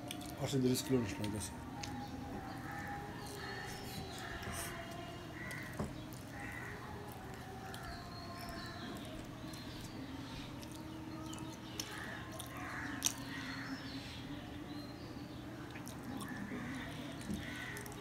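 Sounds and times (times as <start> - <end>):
birds calling: 0.1 - 18.0.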